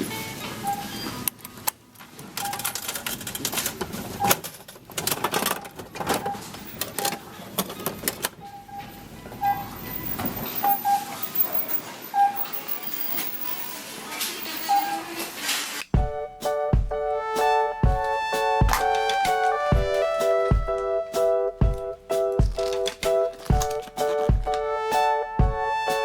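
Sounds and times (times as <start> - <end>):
soft background music: 16.0 - 26.0.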